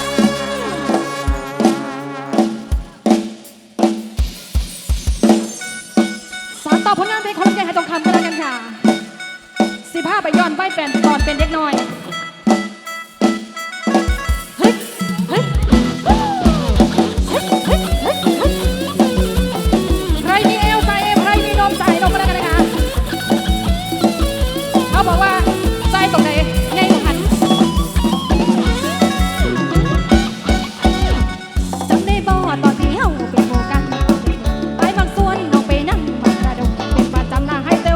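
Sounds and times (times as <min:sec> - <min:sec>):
band music through loudspeakers: 0:00.0 - 0:03.3, 0:05.2 - 0:37.9
heavy bass drum beat: 0:00.0 - 0:05.4, 0:14.1 - 0:37.9.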